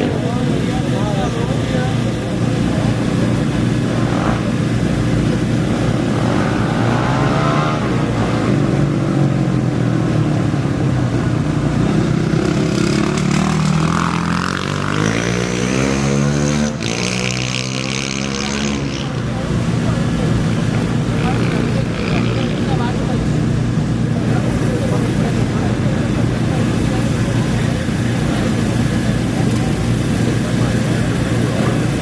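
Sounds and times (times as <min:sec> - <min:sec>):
motor revving and accelerating: 0:00.0 - 0:23.6
off-road racing engines: 0:00.0 - 0:32.0.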